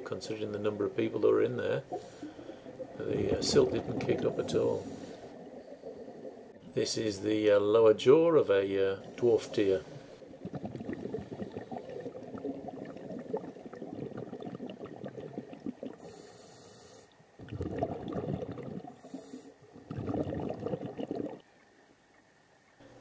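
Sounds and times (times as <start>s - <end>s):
exhaled air bubbling: 0.0s - 6.7s, 8.8s - 21.6s
scuba regulator air hiss: 1.9s - 2.5s, 4.3s - 5.4s, 9.0s - 10.1s, 16.0s - 17.2s, 18.9s - 19.6s.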